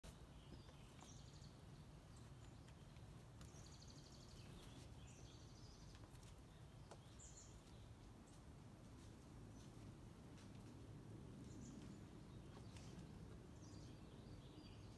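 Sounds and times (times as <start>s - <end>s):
faint bird chirps and trills: 0.1s - 8.5s, 11.4s - 14.9s.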